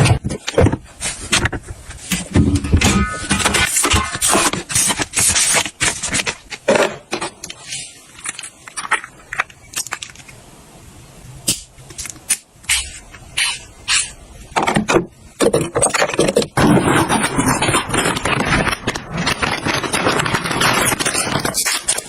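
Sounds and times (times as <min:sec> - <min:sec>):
objects knocking: 0:00.0 - 0:07.4, 0:14.6 - 0:22.0
household objects clicking and rattling: 0:14.6 - 0:22.0.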